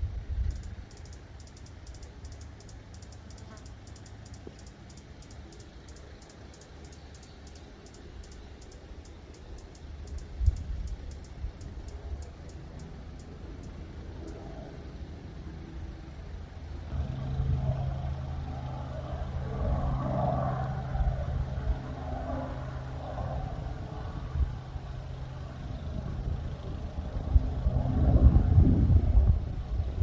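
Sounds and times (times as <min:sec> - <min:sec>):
vehicle engine humming: 0:00.0 - 0:30.0
wind buffeting microphone: 0:16.9 - 0:30.0.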